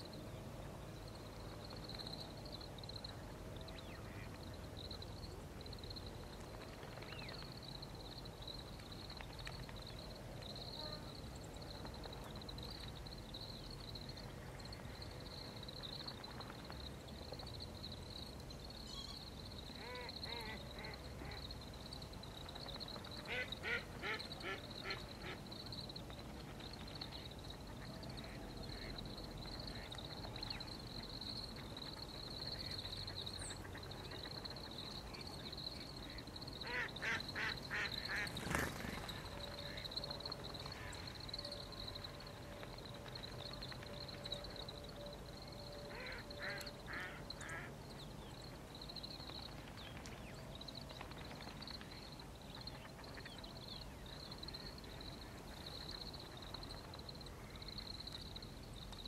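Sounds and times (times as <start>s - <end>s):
faint high-pitched hiss: 0.0s - 59.0s.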